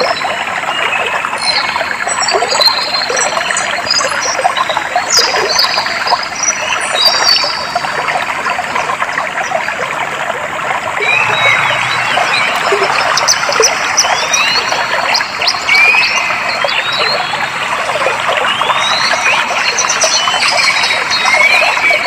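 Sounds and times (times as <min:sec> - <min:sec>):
water trickling: 0:00.0 - 0:22.0
birds singing: 0:11.0 - 0:22.0.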